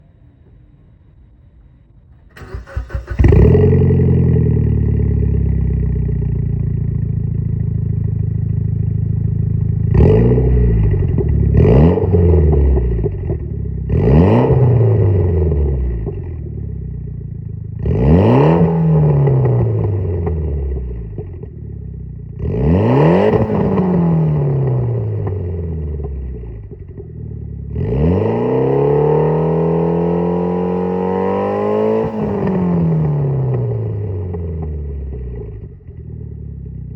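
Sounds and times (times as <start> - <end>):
car engine idling and revving: 1.5 - 36.9
car engine cranking and starting: 1.8 - 7.0.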